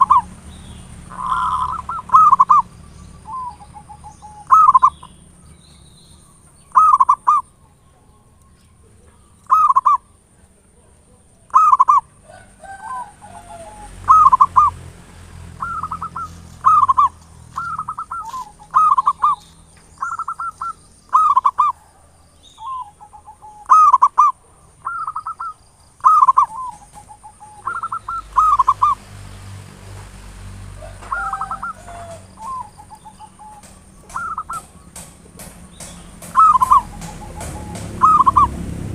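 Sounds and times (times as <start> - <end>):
dove cooing: 0.0 - 5.3, 6.7 - 29.0, 30.8 - 38.9.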